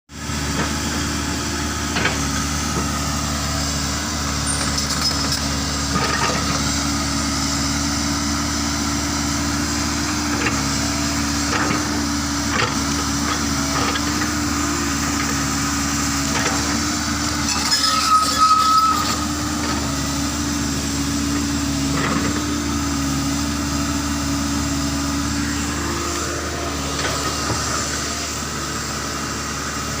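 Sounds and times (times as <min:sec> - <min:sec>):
excavator diesel engines running: 0:00.2 - 0:30.0
high squeal: 0:17.4 - 0:19.3.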